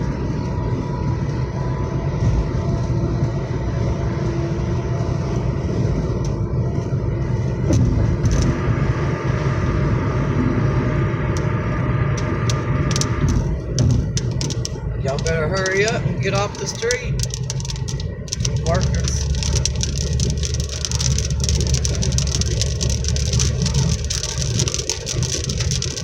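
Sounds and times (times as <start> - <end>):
car engine and road rumble: 0.0 - 26.0
faint clicks: 12.2 - 26.0.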